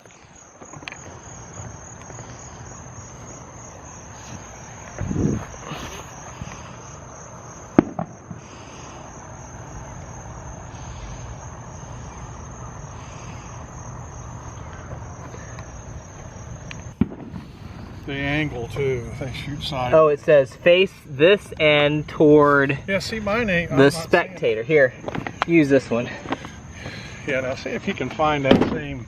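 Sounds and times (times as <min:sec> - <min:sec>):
insects chirring: 0:00.0 - 0:29.0
sharp firecracker crack: 0:07.7 - 0:08.6, 0:16.7 - 0:18.1, 0:28.5 - 0:28.9
low firework boom: 0:07.8 - 0:08.4, 0:17.0 - 0:17.6.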